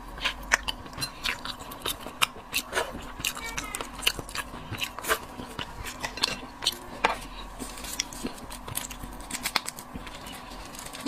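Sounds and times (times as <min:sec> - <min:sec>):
crab shell cracking: 0:07.8 - 0:10.2.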